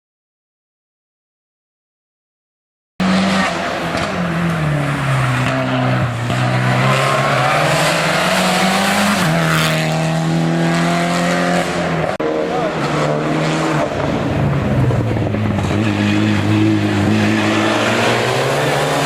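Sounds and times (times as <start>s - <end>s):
race car engine running hard: 7.6s - 19.0s.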